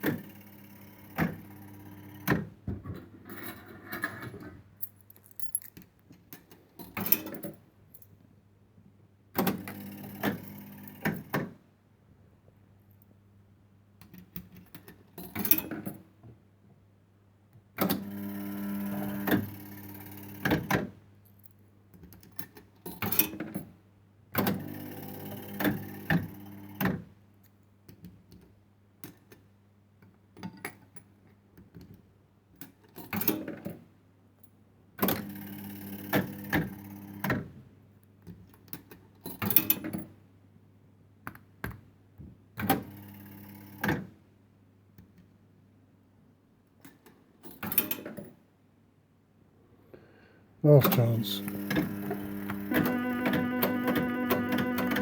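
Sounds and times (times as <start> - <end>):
fruit machine reel motor whine: 51.4 - 55.0.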